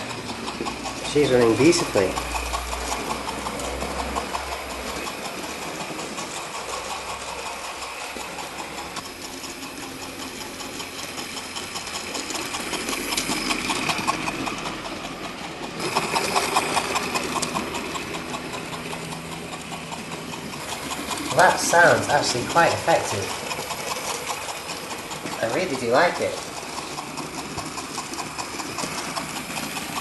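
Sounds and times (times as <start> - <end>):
model train wheels clicking: 0.0 - 30.0
small electric motor whirr: 0.0 - 30.0.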